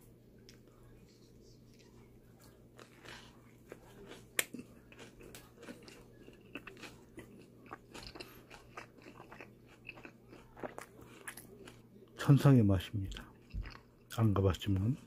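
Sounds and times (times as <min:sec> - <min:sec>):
person chewing a wrap: 0:01.7 - 0:12.2, 0:13.1 - 0:14.2.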